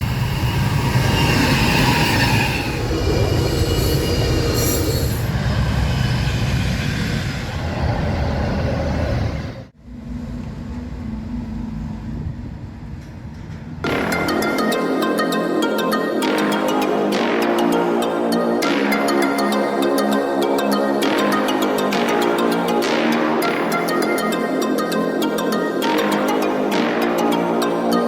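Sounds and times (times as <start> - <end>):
high wheel squeal: 0.0 - 9.6
train rumbling on rails: 0.0 - 14.6.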